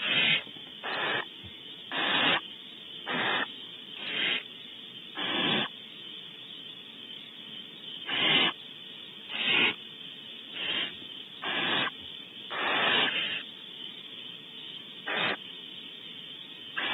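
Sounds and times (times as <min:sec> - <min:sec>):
owlets hissing: 0:00.0 - 0:04.5, 0:05.1 - 0:05.7, 0:08.0 - 0:08.6, 0:09.2 - 0:13.5, 0:15.0 - 0:15.4
steady background hiss: 0:00.0 - 0:16.9.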